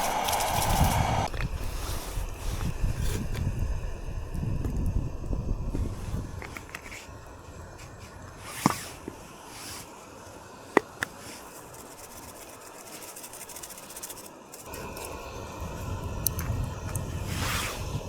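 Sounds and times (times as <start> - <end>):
wind noise: 0.0 - 8.9, 14.7 - 18.0.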